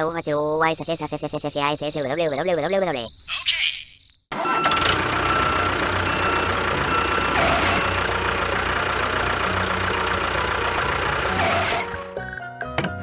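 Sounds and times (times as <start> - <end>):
engine idling: 4.3 - 13.0.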